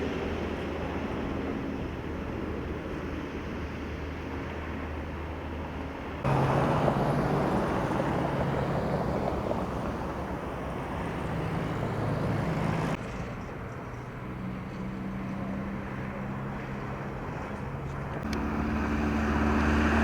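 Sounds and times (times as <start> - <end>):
machinery engines running: 0.4 - 20.0
loud rough engine: 6.2 - 13.2, 14.3 - 20.0.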